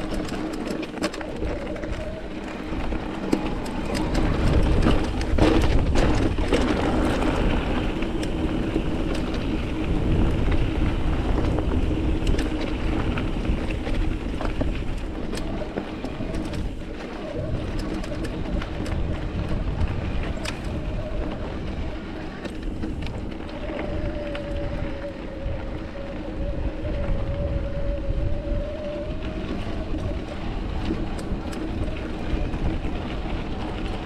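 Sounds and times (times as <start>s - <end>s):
sharp clicks and rattles: 0.0s - 25.4s
bike rolling over rocky trail: 0.0s - 34.0s
wind on microphone: 0.0s - 34.0s.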